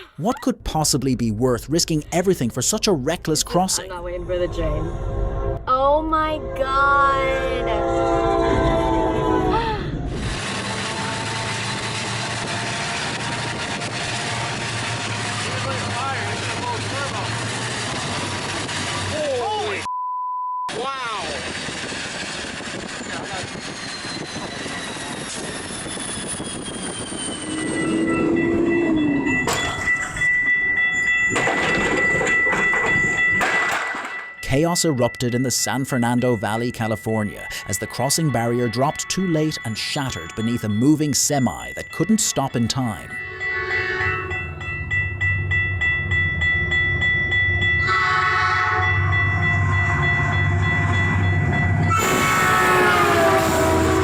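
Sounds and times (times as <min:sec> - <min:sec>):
level-crossing bell ringing: 0:00.0 - 0:04.0, 0:23.5 - 0:53.4
train rumbling: 0:00.0 - 0:19.9, 0:20.7 - 0:54.0
train horn: 0:06.4 - 0:09.6, 0:10.3 - 0:16.5, 0:43.2 - 0:44.4, 0:47.8 - 0:49.0, 0:51.8 - 0:54.0
train wheels rumbling on rail: 0:10.0 - 0:19.9, 0:20.9 - 0:34.2
loud harsh noise: 0:10.1 - 0:19.9, 0:51.9 - 0:54.0
high-pitched tone: 0:24.0 - 0:33.4, 0:34.2 - 0:48.1
low tone dropping in pitch: 0:24.2 - 0:30.0.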